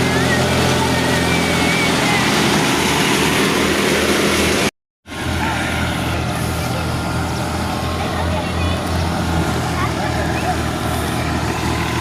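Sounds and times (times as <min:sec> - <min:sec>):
thresher noise: 0:00.0 - 0:04.7
tractor diesel engine running: 0:00.0 - 0:12.0.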